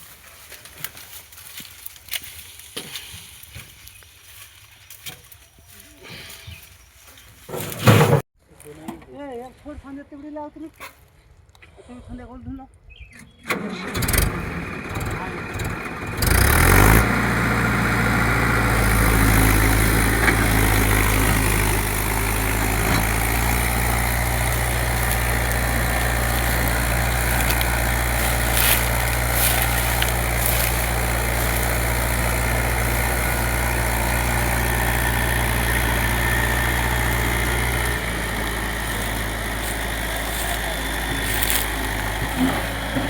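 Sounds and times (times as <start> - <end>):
diesel engine idling: 13.8 - 43.0.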